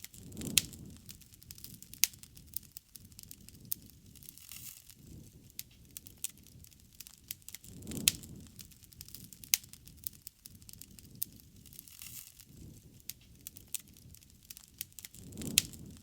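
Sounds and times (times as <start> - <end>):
bonfire crackling and popping: 0.0 - 16.0
low rushing of flames: 0.0 - 16.0.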